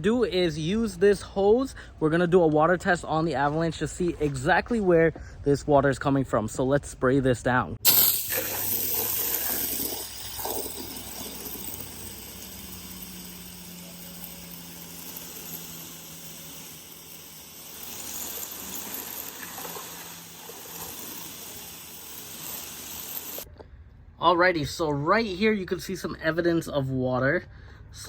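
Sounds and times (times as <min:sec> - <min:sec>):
hose water spraying on truck: 0:07.8 - 0:23.5.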